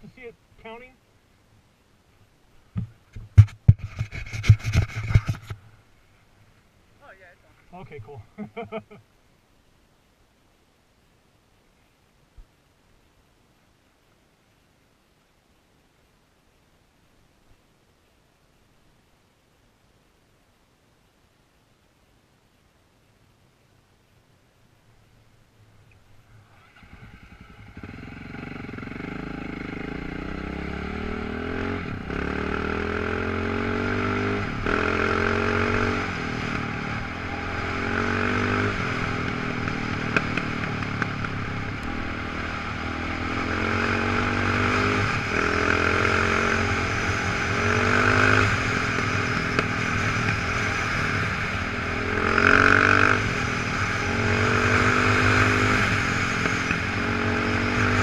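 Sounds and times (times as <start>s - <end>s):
off-road motorcycle engine revving: 26.5s - 58.0s.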